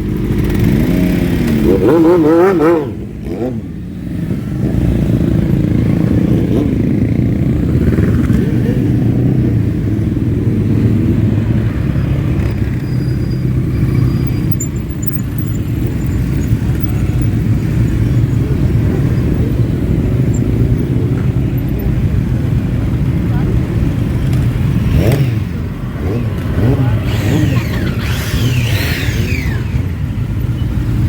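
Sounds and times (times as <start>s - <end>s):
motorcycle engines rumbling past: 0.0s - 31.0s.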